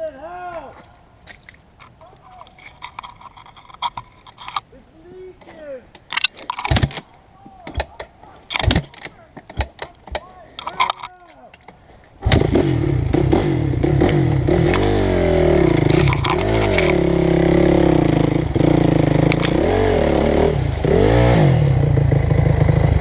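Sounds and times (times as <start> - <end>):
dirt bike engine revving: 12.2 - 23.0.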